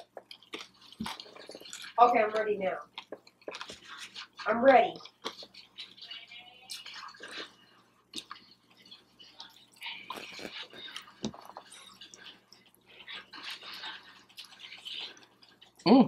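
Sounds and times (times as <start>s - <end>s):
wet mouth clicks: 0.0s - 2.0s, 3.0s - 6.0s, 8.1s - 8.8s, 9.7s - 16.0s
chewing crunchy food: 0.0s - 15.9s.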